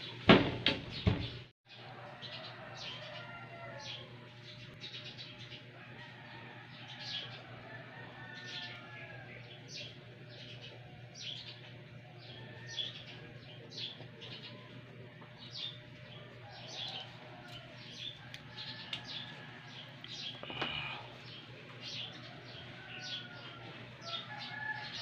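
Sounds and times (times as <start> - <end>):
birds chirping: 0.9 - 25.0
steady low hum: 3.8 - 25.0.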